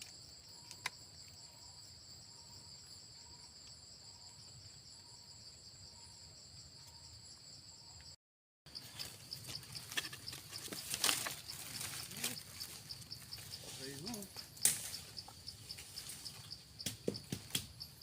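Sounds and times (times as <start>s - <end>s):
insects trilling: 0.0s - 18.0s
pulsing high insect call: 0.0s - 18.0s
rustling: 8.8s - 16.5s.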